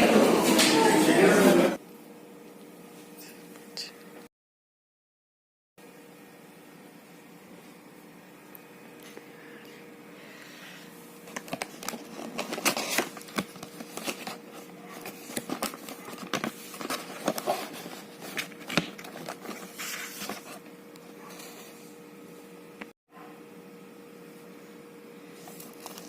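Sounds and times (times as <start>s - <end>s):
faint hum: 5.8s - 26.0s
objects being handled: 11.2s - 21.8s.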